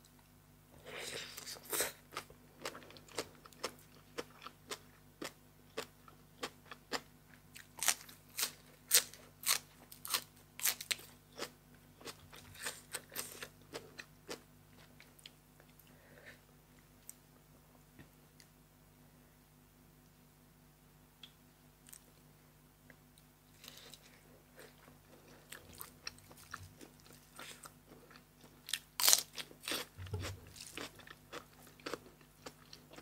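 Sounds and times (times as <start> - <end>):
person chewing crisp food: 0.8 - 16.0, 23.6 - 33.0.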